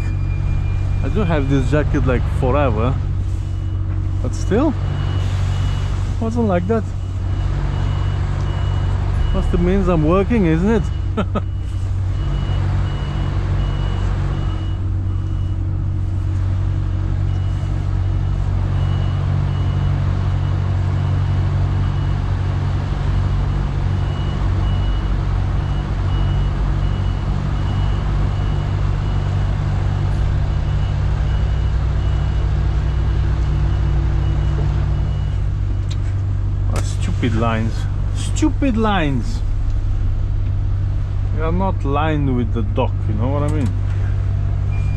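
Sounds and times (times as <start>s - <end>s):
reversing alarm beeping: 0.0s - 22.2s, 23.1s - 35.9s, 44.7s - 44.9s
lorry engine running: 0.0s - 44.9s.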